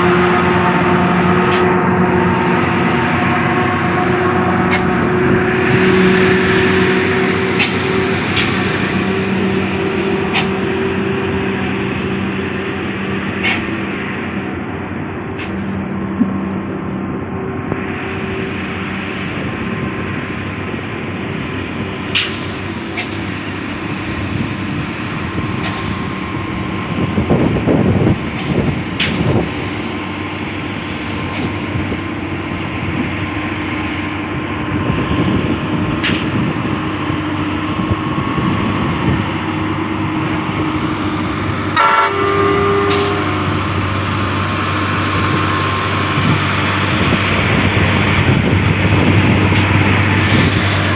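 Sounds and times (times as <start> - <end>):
horn-like tone: 0.0 - 7.5, 41.7 - 44.1
trucks rumbling on highway: 0.0 - 50.9.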